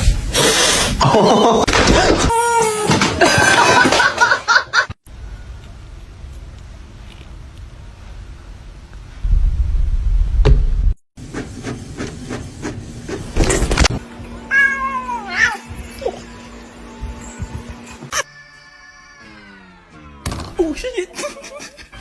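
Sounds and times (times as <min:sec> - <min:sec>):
low rumbling: 0:09.1 - 0:11.0.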